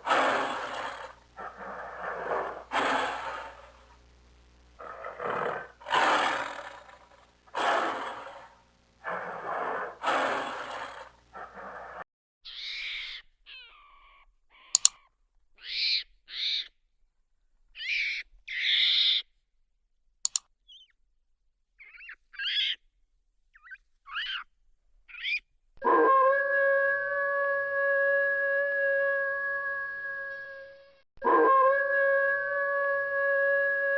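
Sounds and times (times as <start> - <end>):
howl-like call: 0.0 - 3.8, 4.8 - 12.0, 25.8 - 33.9
rough loud animal calls: 0.0 - 4.0, 4.8 - 15.0, 25.1 - 33.9
sharp clicks: 14.7 - 15.0, 20.2 - 20.5
short high bird-like calls: 21.8 - 22.8, 23.6 - 24.5, 25.1 - 25.4.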